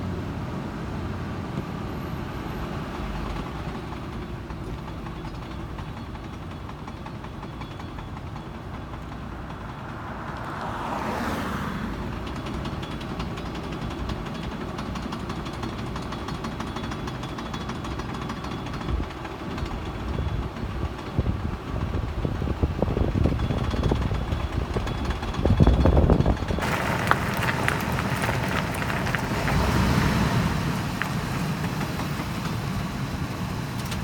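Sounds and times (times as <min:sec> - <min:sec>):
vehicle driving rumble: 0:08.9 - 0:13.5, 0:25.2 - 0:34.0.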